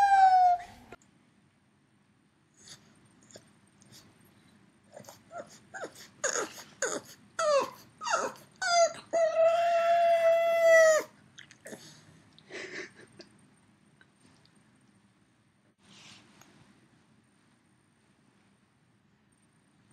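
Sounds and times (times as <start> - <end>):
dog howling: 0.0 - 0.9, 5.0 - 11.2
dog yelping: 0.0 - 0.9, 4.9 - 11.1.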